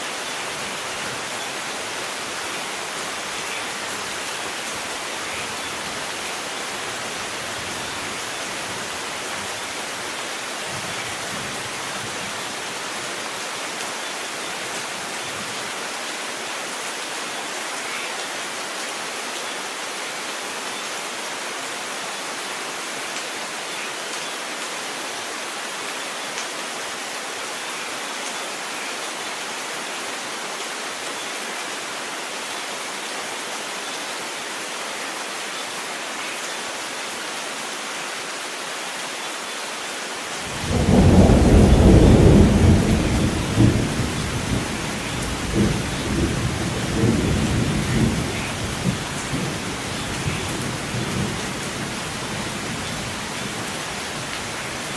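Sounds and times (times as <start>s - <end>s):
rain hiss: 0.0s - 54.9s.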